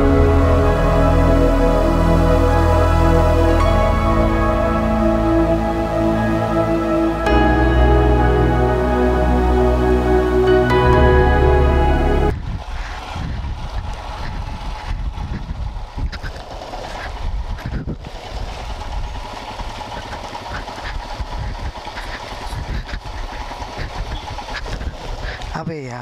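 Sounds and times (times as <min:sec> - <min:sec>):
rough road noise: 0:12.3 - 0:25.6
wind noise: 0:12.3 - 0:25.7
motorcycle engine running: 0:13.6 - 0:25.3.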